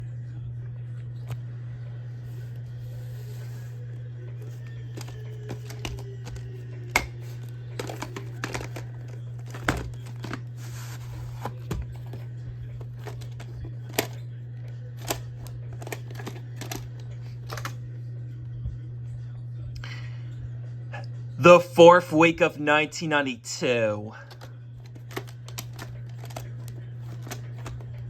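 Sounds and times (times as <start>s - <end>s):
steady low hum: 0.0s - 28.0s
rustling handling noises: 2.2s - 17.8s, 24.2s - 28.0s.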